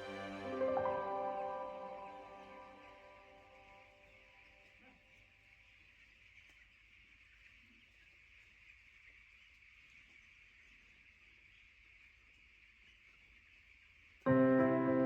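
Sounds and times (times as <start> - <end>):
background music: 0.0 - 4.0, 14.3 - 15.0.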